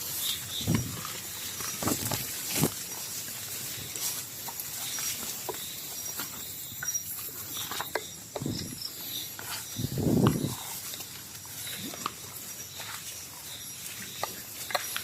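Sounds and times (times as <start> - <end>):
footsteps rustling through leaf litter: 0.0 - 7.3
night insects chirping: 0.0 - 15.0.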